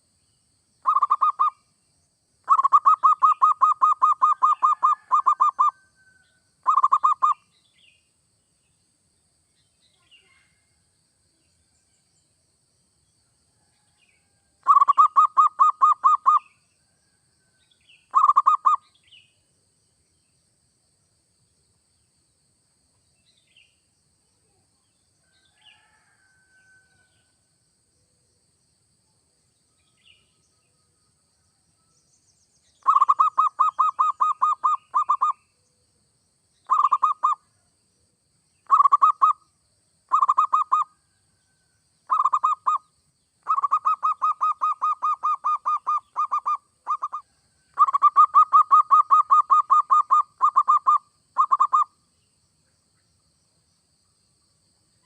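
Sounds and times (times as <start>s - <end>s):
faint chirps: 0.0s - 20.5s, 22.9s - 28.3s, 29.1s - 55.0s
dove cooing: 0.8s - 1.5s, 2.5s - 5.7s, 6.6s - 7.3s, 18.1s - 18.8s, 32.8s - 35.3s, 36.7s - 37.4s, 42.1s - 42.8s, 43.5s - 47.2s.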